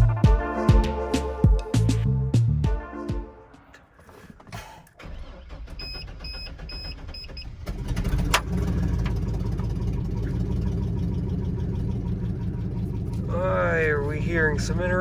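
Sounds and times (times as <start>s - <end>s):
truck engine cranking and starting: 4.0s - 15.0s
truck engine idling with tick: 7.7s - 15.0s.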